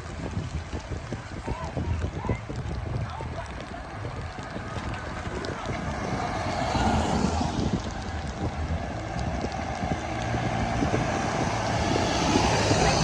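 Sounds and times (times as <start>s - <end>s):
vehicle rumble: 0.0s - 13.0s
wind noise on microphone: 0.0s - 13.0s.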